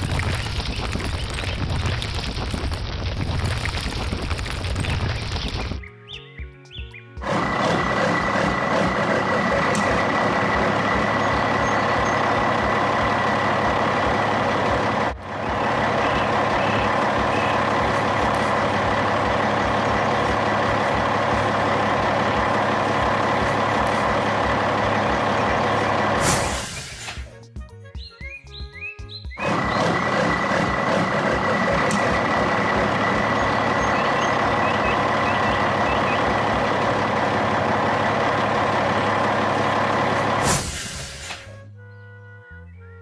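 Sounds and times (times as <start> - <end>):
heavy truck engine running: 0.0 - 5.8, 7.2 - 27.4, 29.4 - 41.6
air brake hiss: 25.8 - 27.4, 39.6 - 41.6.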